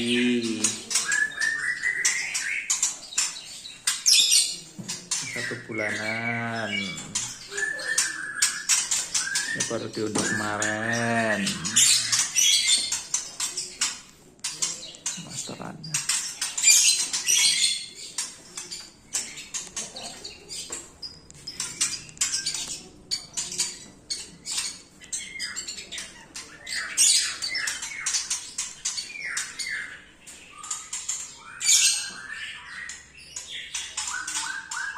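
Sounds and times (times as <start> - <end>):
bird chicks squawking and chirping: 0.0 - 34.9.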